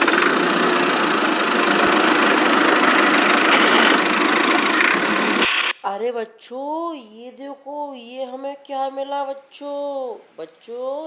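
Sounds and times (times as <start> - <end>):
toy tractor engine running: 0.0 - 5.7.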